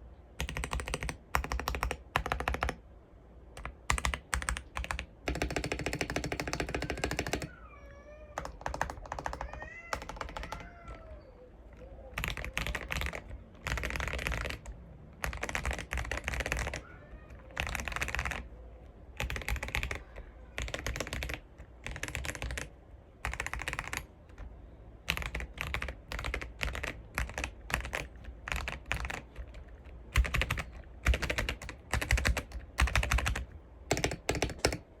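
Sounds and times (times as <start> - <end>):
mechanical keyboard typing: 0.4 - 2.8, 3.5 - 7.5, 8.4 - 18.5, 19.1 - 35.0
cat meowing: 7.5 - 12.1, 16.8 - 17.6.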